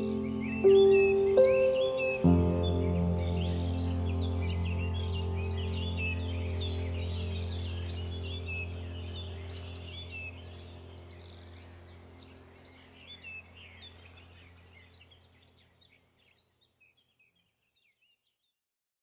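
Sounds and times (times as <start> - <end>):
low steady drone: 0.0 - 15.1
small birds chirping: 0.0 - 18.5.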